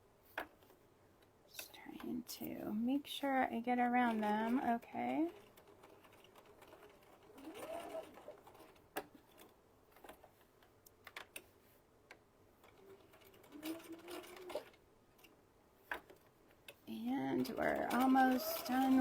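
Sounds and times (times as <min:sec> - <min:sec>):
sewing machine stitching: 0:03.8 - 0:09.5, 0:12.6 - 0:14.8, 0:16.9 - 0:19.0.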